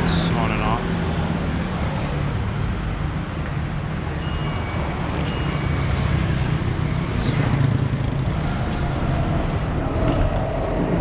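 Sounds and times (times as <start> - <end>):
road traffic: 0.0 - 11.0
wind rumble on microphone: 8.8 - 11.0.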